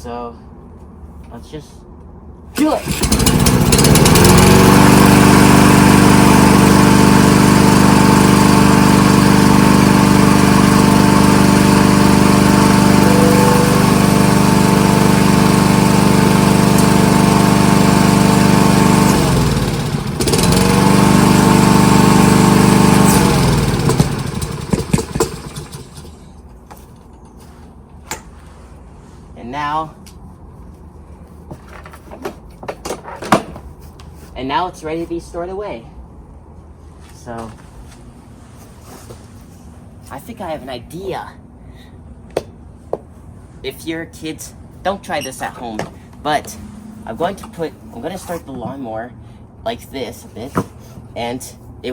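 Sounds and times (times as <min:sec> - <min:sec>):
lawnmower engine running: 0:02.6 - 0:29.2, 0:44.5 - 0:48.8.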